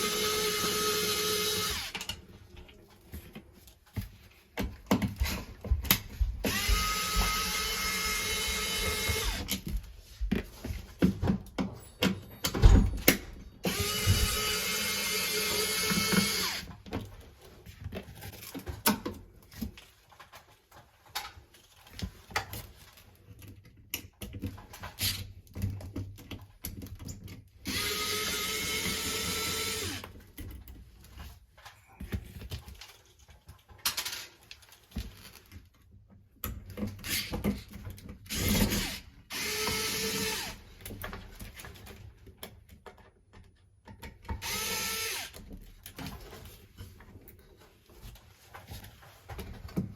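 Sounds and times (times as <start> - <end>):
power drill running: 0.0 - 2.0, 6.4 - 9.6, 13.6 - 16.7, 27.7 - 30.1, 38.3 - 40.6, 44.4 - 45.4.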